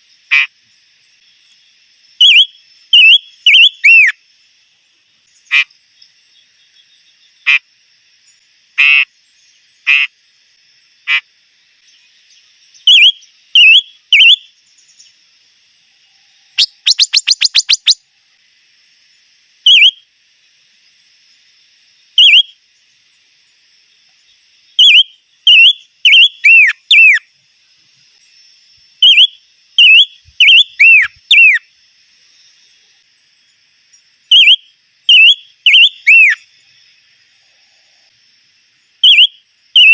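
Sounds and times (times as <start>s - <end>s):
songbird whistling: 2.2s - 4.2s, 12.8s - 15.0s, 16.5s - 18.0s, 19.7s - 20.0s, 22.2s - 22.6s, 24.8s - 27.3s, 29.0s - 31.6s, 34.3s - 36.4s, 39.0s - 39.9s.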